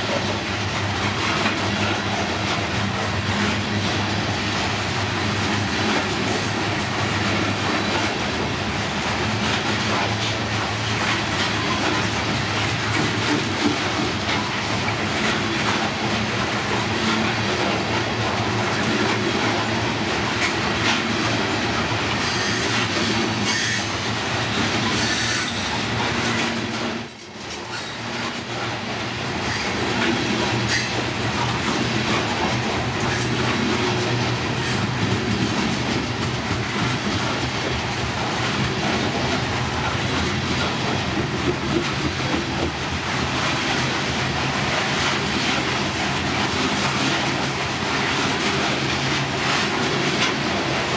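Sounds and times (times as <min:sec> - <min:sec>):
train wheels clattering over rail joints: 0:00.0 - 0:50.9
high wheel squeals: 0:23.4 - 0:24.0, 0:24.9 - 0:28.6.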